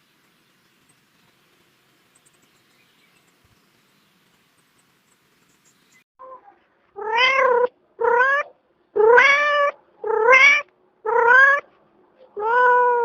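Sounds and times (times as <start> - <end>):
cat meowing: 7.0 - 11.7, 12.4 - 13.0.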